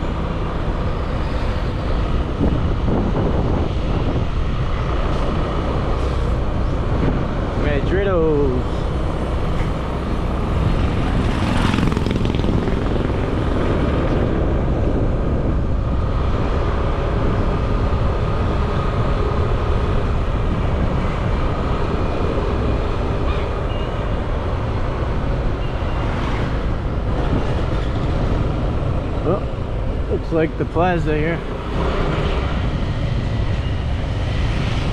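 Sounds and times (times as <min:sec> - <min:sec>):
wind and road noise: 0:00.0 - 0:34.9
motorbike engine running: 0:11.2 - 0:13.4.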